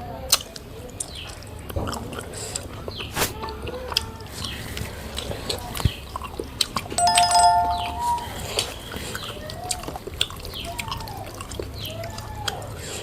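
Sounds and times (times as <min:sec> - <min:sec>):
steady multi-pitched tone: 0:07.0 - 0:08.6.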